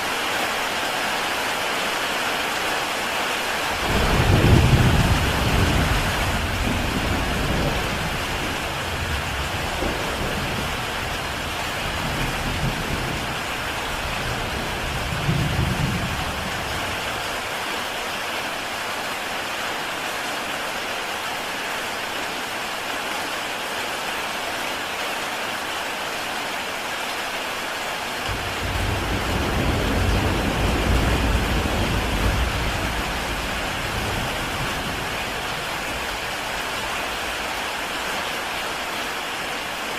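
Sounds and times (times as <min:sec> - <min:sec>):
heavy rain on a tile roof: 0:00.0 - 0:39.9
low thunder rumbles: 0:03.8 - 0:17.2, 0:28.3 - 0:37.9.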